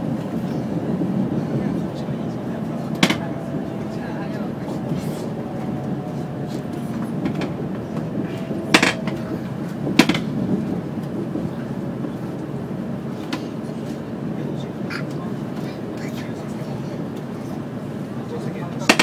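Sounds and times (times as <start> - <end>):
train low rumble inside car: 0.0 - 19.0.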